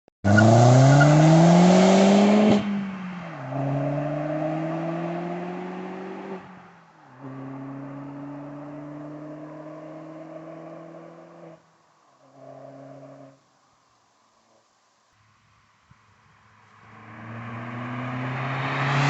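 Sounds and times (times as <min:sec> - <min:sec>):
car engine accelerating: 0:00.2 - 0:06.6, 0:07.2 - 0:11.6, 0:16.6 - 0:19.0.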